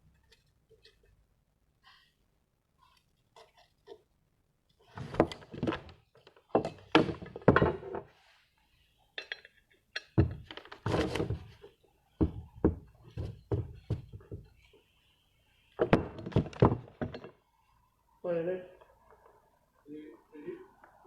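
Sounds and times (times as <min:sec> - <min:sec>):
thunks and knocks: 0:05.0 - 0:08.1, 0:10.2 - 0:11.6, 0:12.2 - 0:14.5, 0:15.8 - 0:17.3.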